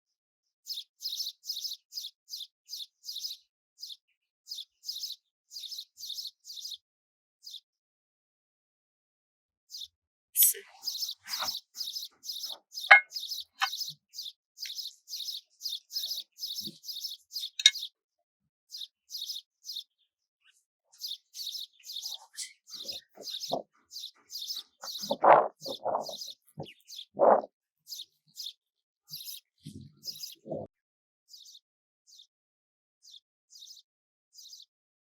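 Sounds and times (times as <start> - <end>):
small bird chirping: 0.7 - 6.8, 9.7 - 18.0, 18.7 - 30.7.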